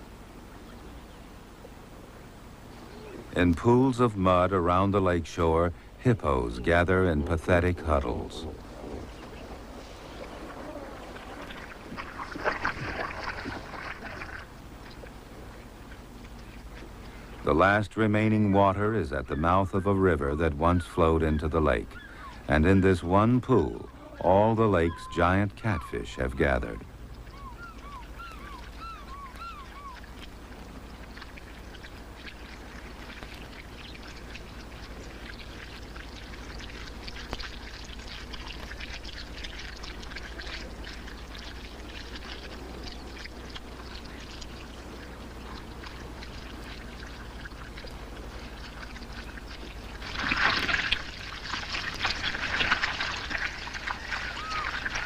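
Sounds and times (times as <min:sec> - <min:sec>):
fish splashing in mud: 0:10.2 - 0:15.2, 0:29.9 - 0:55.0
bird chirps: 0:20.7 - 0:22.5, 0:26.8 - 0:30.0, 0:54.3 - 0:54.8.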